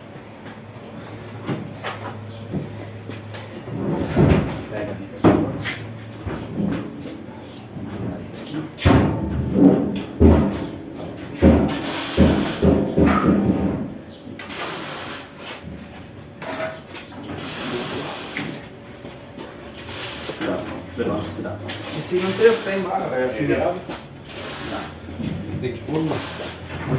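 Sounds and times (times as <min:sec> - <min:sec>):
heavy machine knocks and bumps: 0:03.5 - 0:07.1, 0:07.8 - 0:14.0
hissing scrapes: 0:14.5 - 0:15.6, 0:17.4 - 0:18.6, 0:19.8 - 0:20.6, 0:21.8 - 0:23.0, 0:24.2 - 0:25.1, 0:25.9 - 0:26.9.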